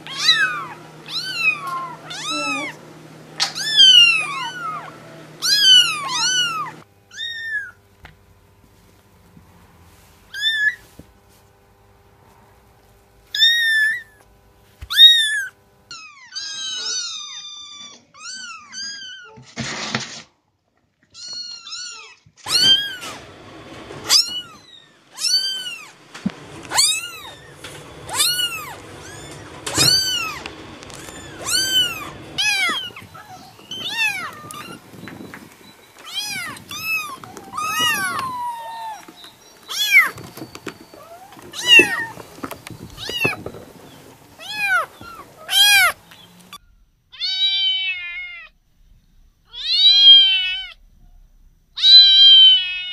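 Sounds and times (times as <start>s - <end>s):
kittens mewing: 0.0s - 7.8s, 14.9s - 19.5s, 21.2s - 23.2s, 24.1s - 26.0s, 26.6s - 48.6s, 49.5s - 50.8s, 51.8s - 52.9s.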